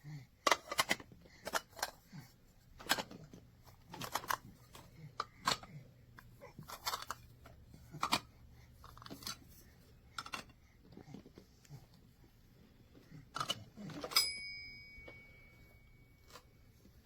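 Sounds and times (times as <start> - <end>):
plastic cups clicking: 10.1 - 10.6.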